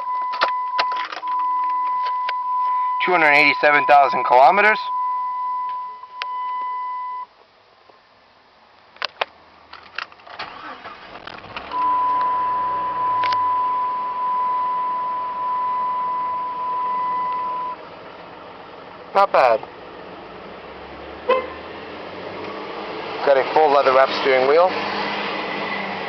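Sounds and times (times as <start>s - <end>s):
car engine starting and idling: 0.0s - 7.2s, 8.9s - 26.0s
high dashboard warning tone: 0.0s - 7.3s, 11.7s - 17.8s
keys clicking in ignition: 0.2s - 2.4s.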